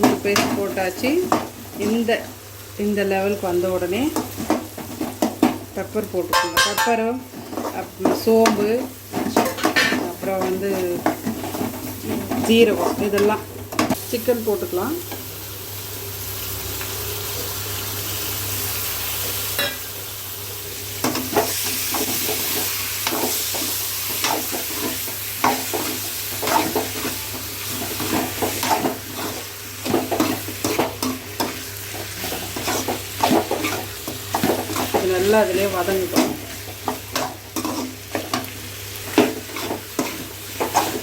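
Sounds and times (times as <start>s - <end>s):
chicken sizzling in a pan: 0.0s - 41.0s
spatula scraping a pan: 21.2s - 35.3s, 36.1s - 41.0s.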